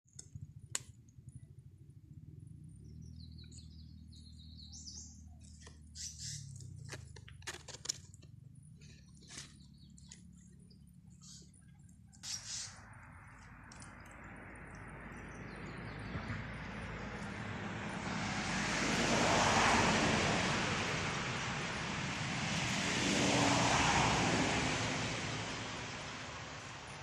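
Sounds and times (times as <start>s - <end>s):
small birds chirping: 2.3s - 7.5s, 8.1s - 18.2s.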